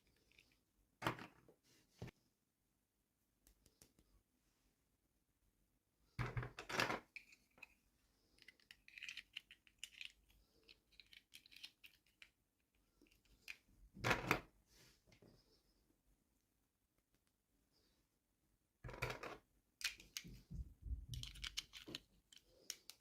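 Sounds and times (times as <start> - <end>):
light clicks and crinkles: 7.1 - 13.7, 19.8 - 23.0.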